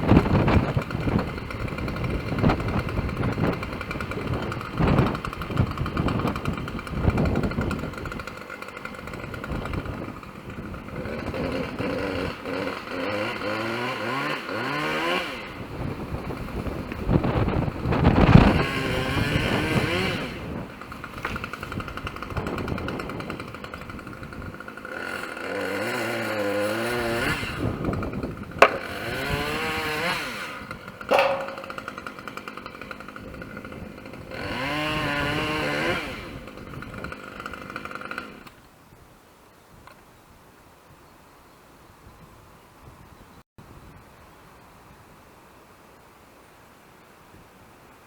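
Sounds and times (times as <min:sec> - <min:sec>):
chainsaw revving and cutting: 0:00.0 - 0:38.6
sharp cracks: 0:28.6 - 0:29.5, 0:30.4 - 0:33.2.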